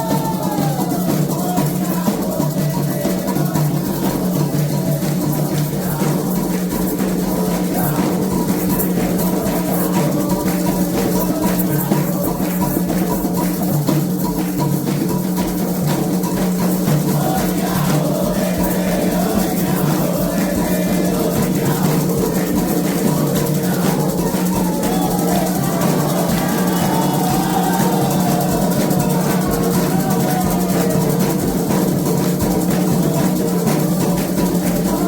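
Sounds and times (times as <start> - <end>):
hand drums playing: 0.0 - 35.0
rattle shaking: 0.0 - 35.0
voices singing faintly: 16.6 - 35.0.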